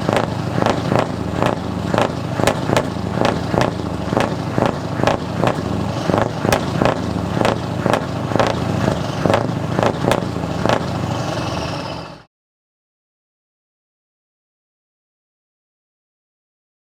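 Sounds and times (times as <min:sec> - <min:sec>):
diesel truck engine running: 0:00.0 - 0:12.3
short sharp cracks: 0:00.1 - 0:10.9.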